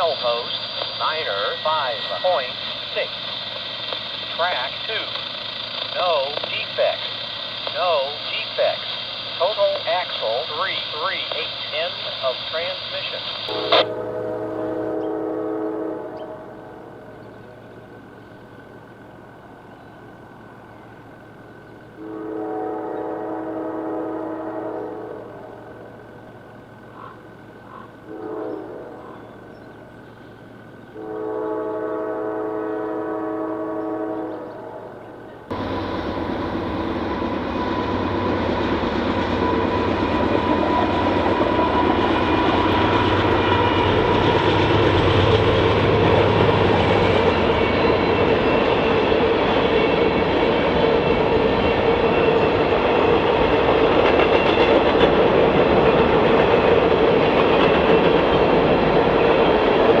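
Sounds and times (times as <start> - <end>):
diesel locomotive rumble: 0.0 - 60.0
locomotive air horn chord: 13.5 - 16.9, 22.0 - 25.6, 28.0 - 29.2, 31.0 - 34.9
train wheels clattering on rails: 35.5 - 60.0.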